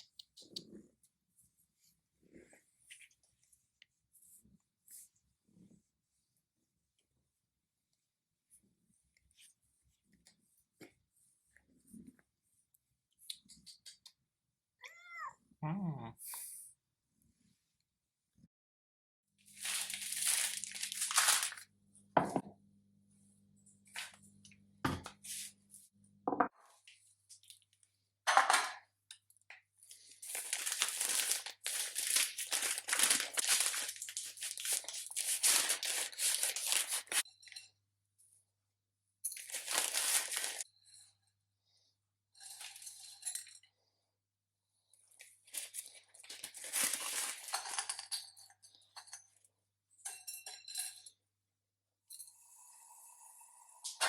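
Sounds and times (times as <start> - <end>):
crackly rustling: 29.8 - 37.2.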